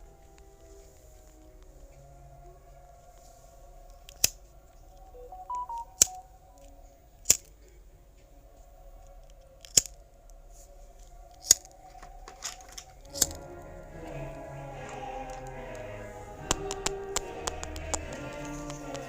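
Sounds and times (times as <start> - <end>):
short high electronic beeps: 5.2 - 6.4.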